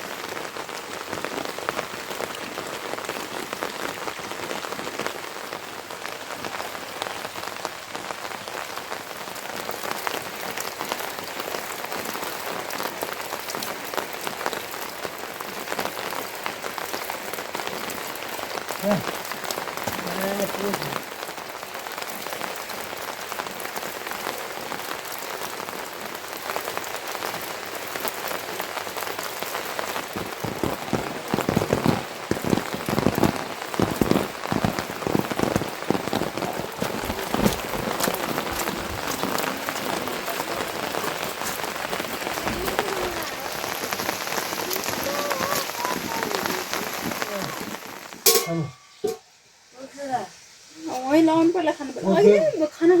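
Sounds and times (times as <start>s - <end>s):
heavy rain falling: 0.0s - 53.0s
loud close raindrops hitting: 0.0s - 53.0s.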